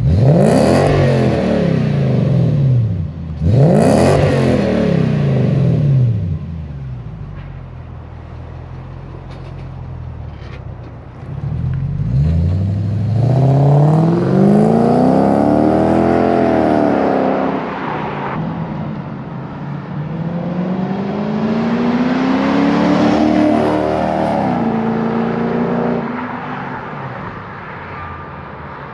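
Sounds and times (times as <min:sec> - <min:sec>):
car engine revving: 0:00.0 - 0:07.0, 0:11.2 - 0:18.4, 0:19.9 - 0:26.6.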